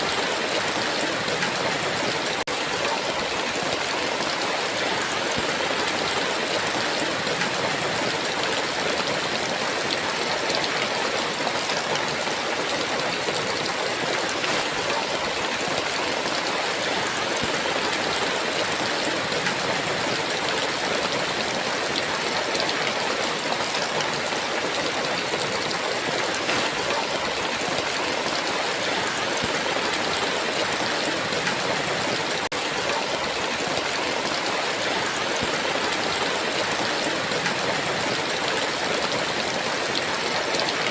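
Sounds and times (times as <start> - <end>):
heavy rain downpour: 0.0 - 40.9.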